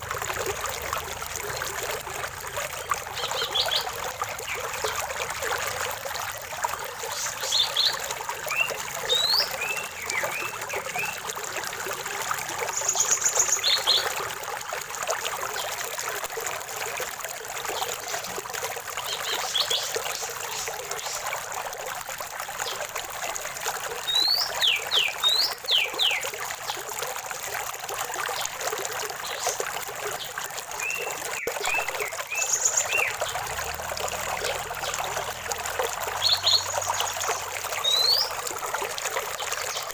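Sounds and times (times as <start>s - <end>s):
stream trickling and splashing: 0.0s - 39.9s
birds chirping: 2.8s - 5.2s, 7.0s - 11.2s, 30.8s - 38.4s.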